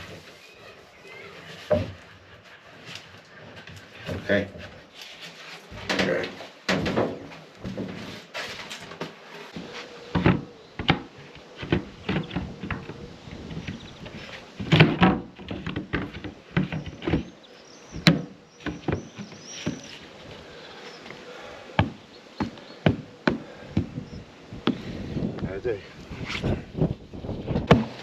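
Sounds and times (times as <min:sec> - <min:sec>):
wooden cover knocking and scraping: 0:01.6 - 0:02.0, 0:05.7 - 0:08.2, 0:08.9 - 0:20.0.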